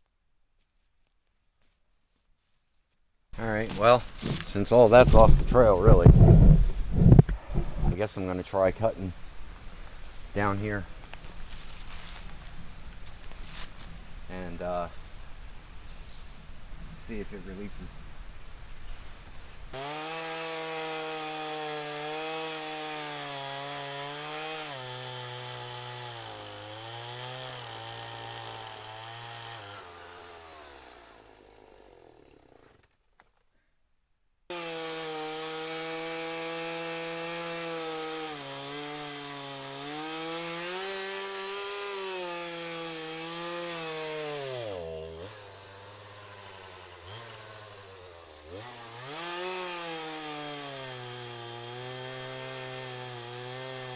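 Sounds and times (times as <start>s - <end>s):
chainsaw cutting wood: 3.4s - 8.0s, 19.7s - 33.4s, 34.5s - 53.9s.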